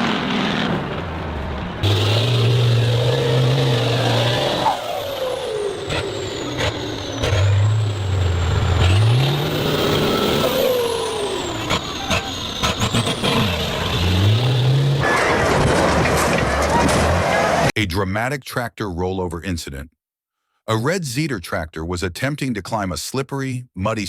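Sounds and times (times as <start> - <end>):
heavy engines revving: 0.0 - 17.7.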